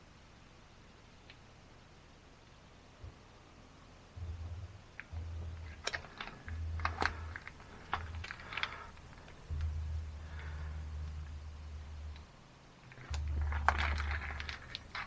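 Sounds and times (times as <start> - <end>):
low rumbling: 3.0 - 15.0
plastic clicks and rattles: 5.0 - 11.4, 12.0 - 15.0.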